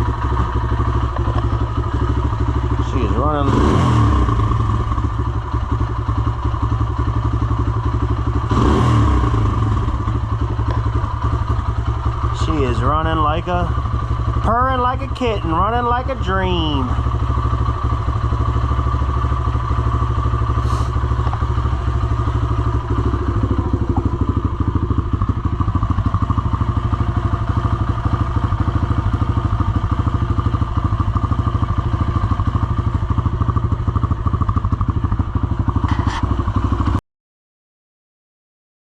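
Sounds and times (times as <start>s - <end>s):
dirt bike engine idling: 0.0s - 37.0s.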